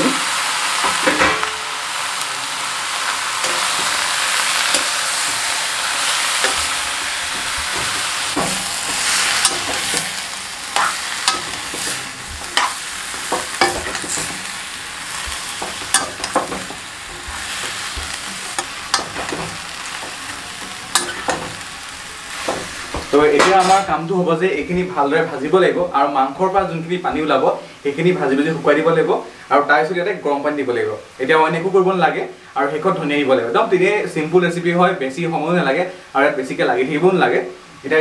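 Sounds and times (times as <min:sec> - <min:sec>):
chicken sizzling in a pan: 0:00.0 - 0:25.3
metal spatula scraping a pan: 0:03.4 - 0:23.9.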